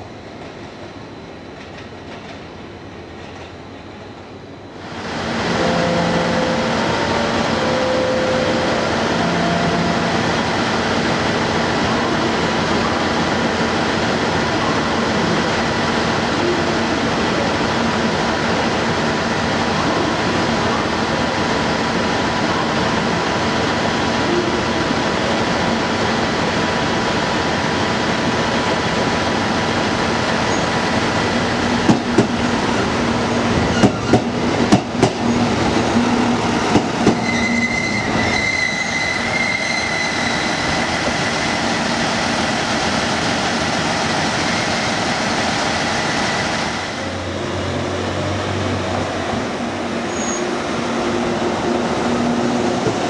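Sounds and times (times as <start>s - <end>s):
diesel railcar running: 0.0s - 53.0s
high squeal: 37.1s - 40.9s, 50.0s - 50.6s.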